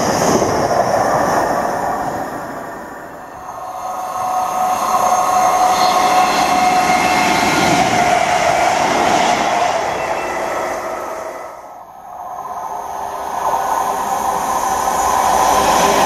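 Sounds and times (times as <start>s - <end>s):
train wheels rushing on rail: 0.0s - 16.0s
high whine: 3.0s - 9.1s.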